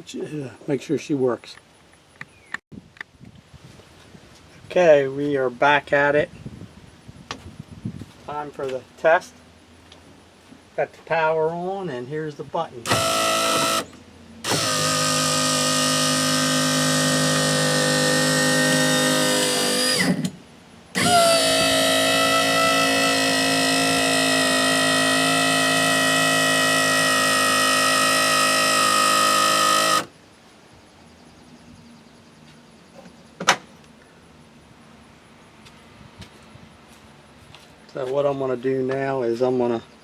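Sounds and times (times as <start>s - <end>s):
electric motor whine: 12.9s - 20.4s, 21.0s - 30.1s.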